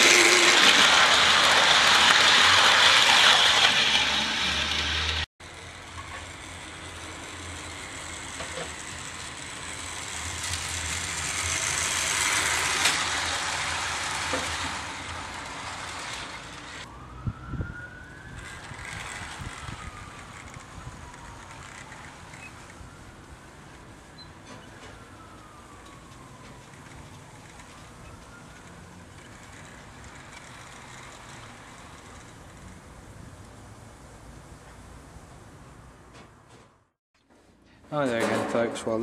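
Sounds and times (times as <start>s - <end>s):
model train running: 0.0s - 16.9s, 18.4s - 22.8s, 28.5s - 32.7s.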